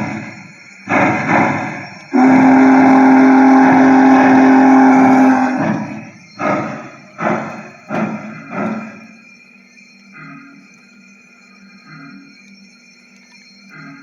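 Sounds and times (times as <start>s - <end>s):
steam chuffs: 0.0s - 12.5s, 13.7s - 14.0s
steam whistle blast: 0.9s - 8.7s.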